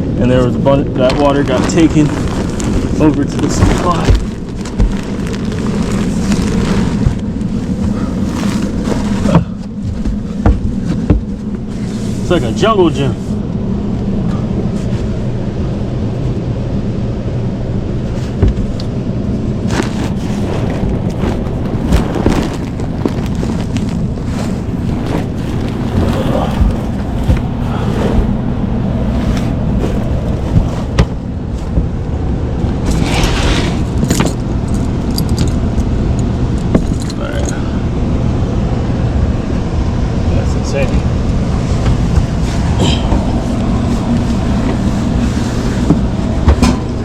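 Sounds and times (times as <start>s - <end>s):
low mechanical hum: 0.0s - 47.0s
knocks bumps and rustles: 0.4s - 12.7s, 18.0s - 35.8s, 36.5s - 37.3s, 40.9s - 47.0s.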